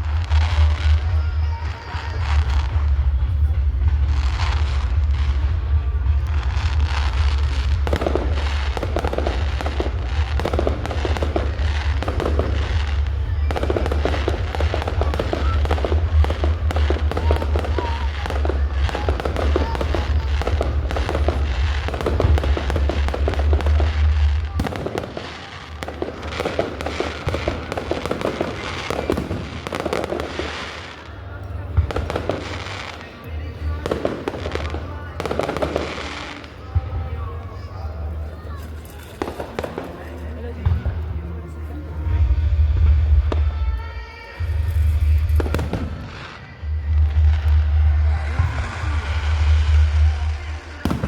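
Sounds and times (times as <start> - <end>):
low rumble: 0.0 - 24.9, 42.0 - 51.0
fireworks crackling and banging: 0.0 - 51.0.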